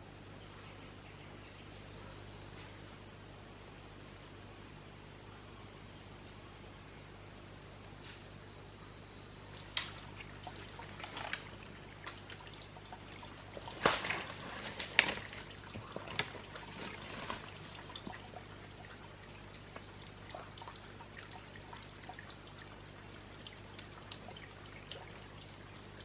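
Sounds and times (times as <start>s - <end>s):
water trickling and splashing: 9.4s - 26.0s.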